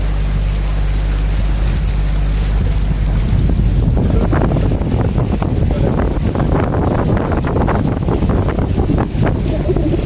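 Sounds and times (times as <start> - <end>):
wind buffeting microphone: 1.3 - 10.0.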